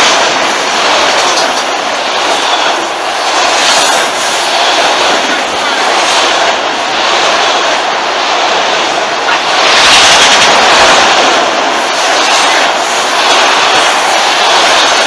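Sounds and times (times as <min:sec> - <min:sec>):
freight train wheels rushing on rail: 0:00.0 - 0:15.0.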